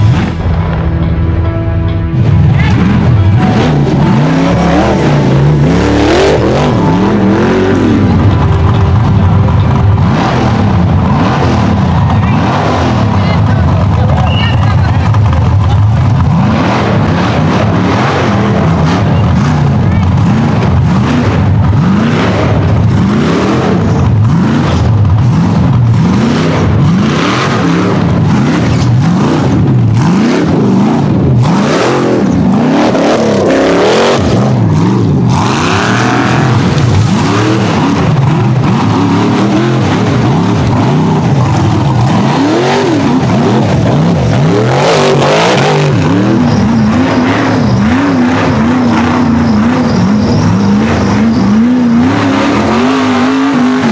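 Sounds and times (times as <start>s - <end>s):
engines revving hard: 0.0s - 0.9s, 2.1s - 53.9s.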